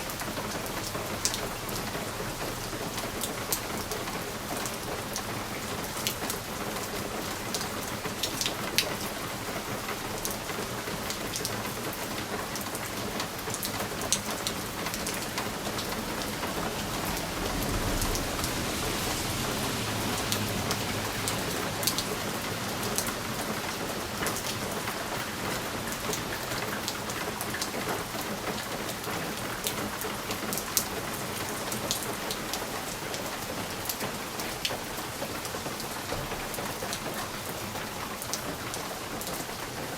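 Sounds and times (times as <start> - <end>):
rain pattering on a window: 0.0 - 39.9
low rumble: 15.3 - 22.1.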